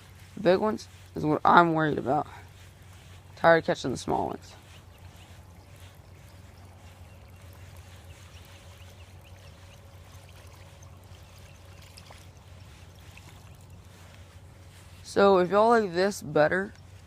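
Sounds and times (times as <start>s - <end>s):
steady low hum: 0.0s - 17.0s
trickling gurgling water: 4.6s - 14.1s.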